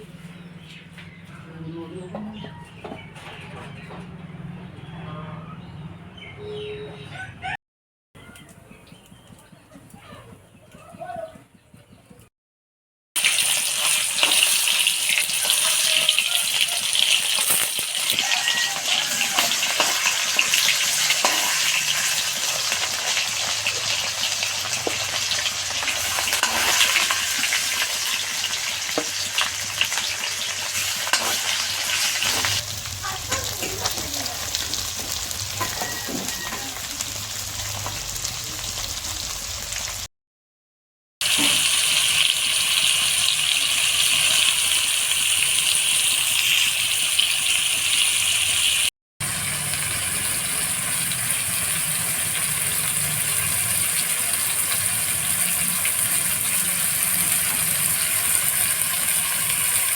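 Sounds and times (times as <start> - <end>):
chicken frying in hot oil: 13.2 - 40.1, 41.2 - 59.9.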